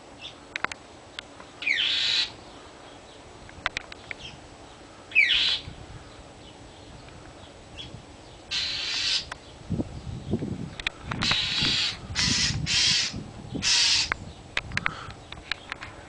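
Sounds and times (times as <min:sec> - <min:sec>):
bird harsh scolding calls: 0:01.6 - 0:02.6, 0:04.2 - 0:06.2, 0:07.8 - 0:09.5, 0:11.0 - 0:14.3.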